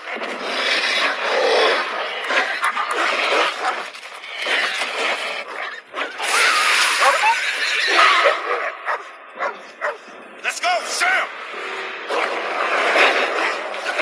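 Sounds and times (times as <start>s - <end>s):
dog whining and yelping: 4.6s - 10.0s
loud noise: 6.1s - 8.2s, 10.4s - 14.0s.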